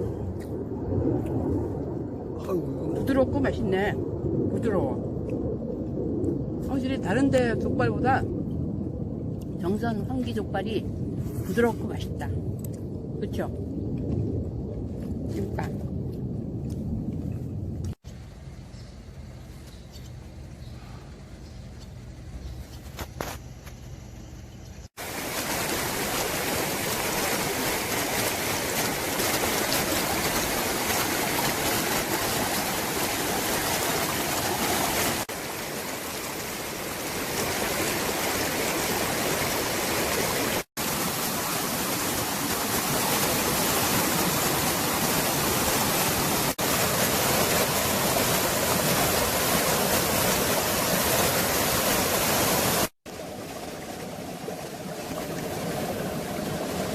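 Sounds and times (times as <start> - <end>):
stream rushing: 25.0 - 56.9.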